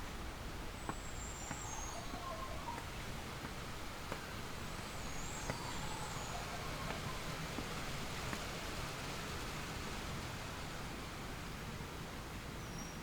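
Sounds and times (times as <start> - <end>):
outdoor background noise: 0.0 - 13.0
faint bird calls: 1.0 - 3.0.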